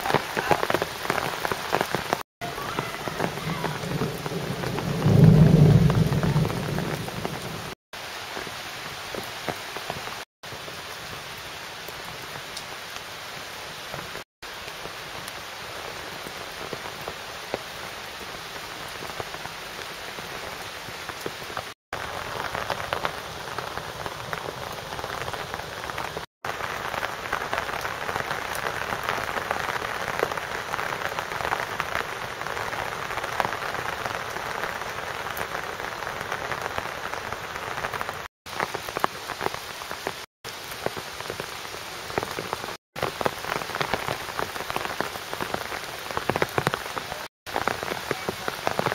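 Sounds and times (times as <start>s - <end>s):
heavy rain pouring: 0.0s - 48.9s
raindrops pattering: 0.0s - 48.9s.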